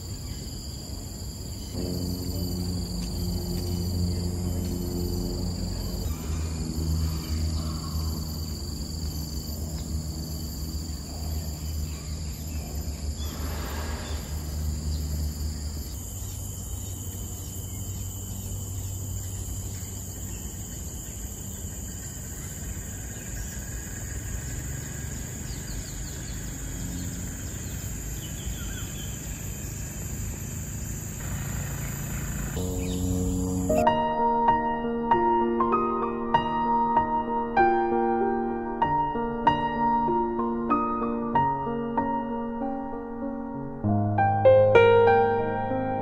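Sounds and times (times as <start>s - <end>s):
high insect drone: 0.0s - 42.9s
low rumble: 1.7s - 16.9s
faint bird calls: 5.8s - 8.8s.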